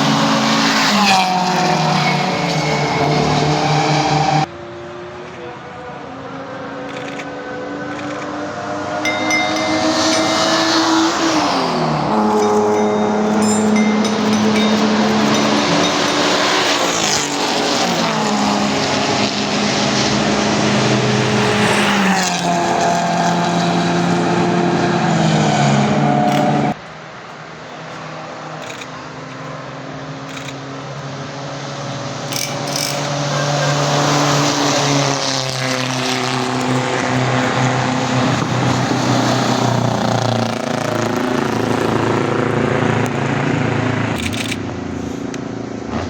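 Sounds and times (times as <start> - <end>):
racing car engines running hard: 0.0 - 46.0.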